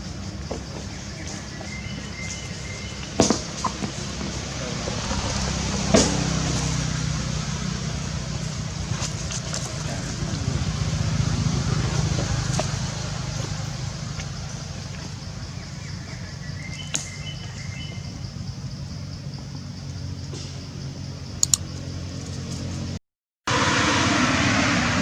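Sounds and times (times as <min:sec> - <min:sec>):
vehicle engine humming: 0:00.0 - 0:25.0
sharp click: 0:21.4 - 0:21.7.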